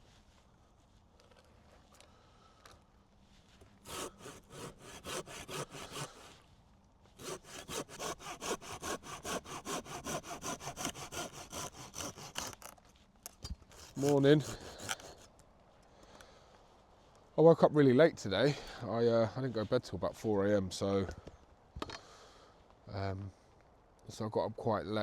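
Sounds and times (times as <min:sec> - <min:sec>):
hand saw cutting wood: 0:03.8 - 0:06.4, 0:07.2 - 0:12.8, 0:13.6 - 0:15.3.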